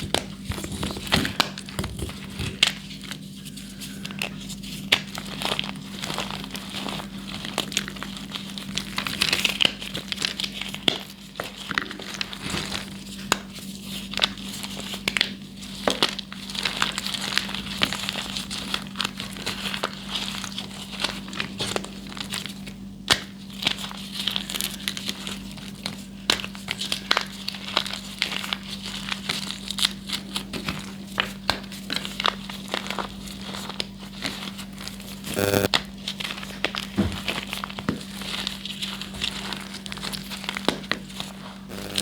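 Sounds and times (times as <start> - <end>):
short buzz: 35.4 - 35.7, 41.7 - 42.0
steady low hum: 35.4 - 35.7, 41.7 - 42.0.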